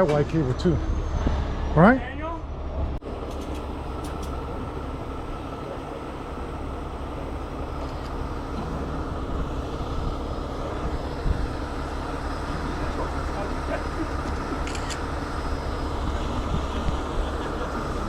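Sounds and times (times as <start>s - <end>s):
truck diesel engine running: 0.0s - 18.0s.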